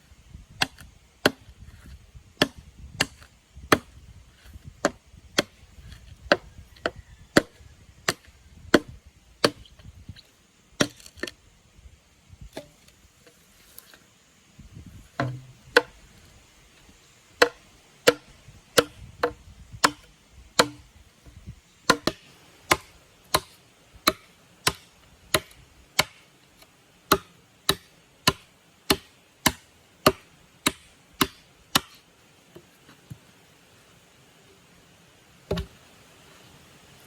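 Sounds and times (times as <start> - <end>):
blade chopping: 15.2 - 16.0.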